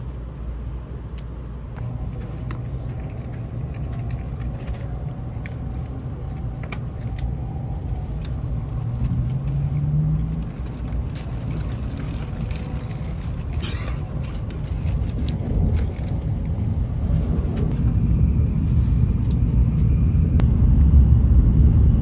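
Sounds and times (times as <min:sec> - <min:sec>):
train interior rumble: 0:00.0 - 0:22.0
low hum rising in pitch: 0:15.5 - 0:22.0.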